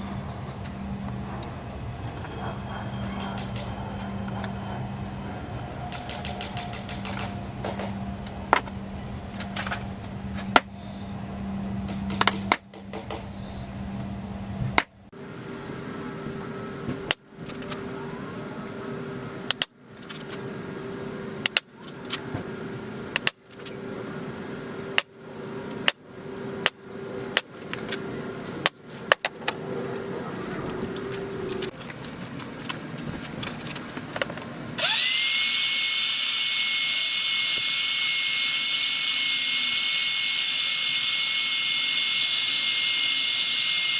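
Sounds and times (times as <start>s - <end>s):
drill clicks: 30.4s - 43.9s
power drill bursts: 34.8s - 43.9s
power tool whining loudly: 34.8s - 43.9s.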